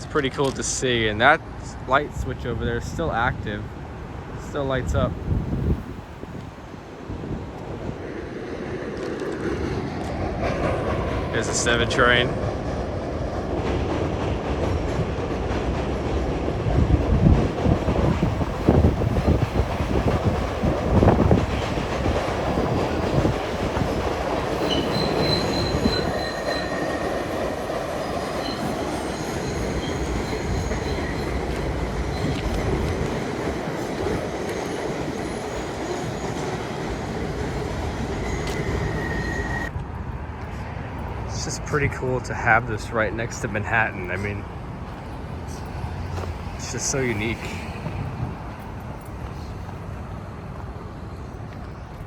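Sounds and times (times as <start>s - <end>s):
subway train passing: 0.0s - 52.0s
train wheel squeals: 23.8s - 39.7s.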